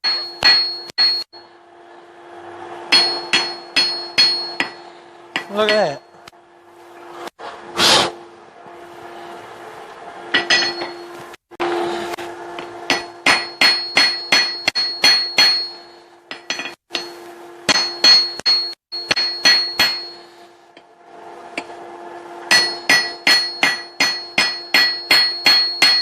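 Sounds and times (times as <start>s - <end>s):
hammer striking hot steel on anvil: 0.0s - 1.6s, 2.9s - 6.4s, 10.3s - 20.9s, 21.5s - 21.8s, 22.4s - 26.0s
steady hum: 0.0s - 26.0s.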